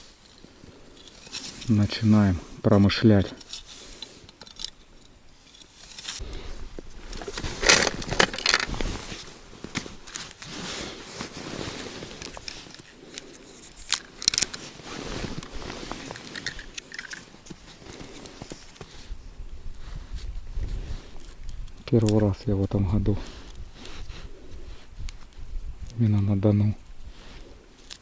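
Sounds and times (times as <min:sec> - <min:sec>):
handling clicks scrapes and rustling: 0:00.2 - 0:02.0, 0:03.0 - 0:06.2, 0:07.1 - 0:19.0.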